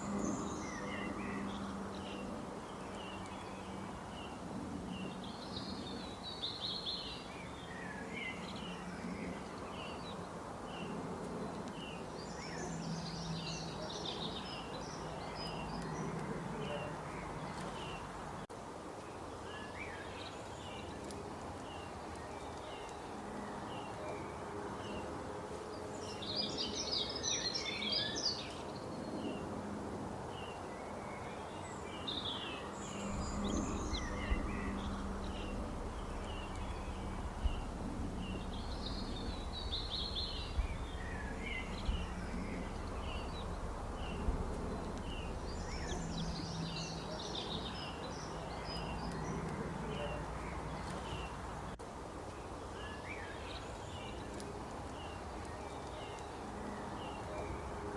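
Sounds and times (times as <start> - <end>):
low background hum: 32.8 - 51.8
chattering bird calls: 33.0 - 47.7
low rumble: 33.0 - 51.8.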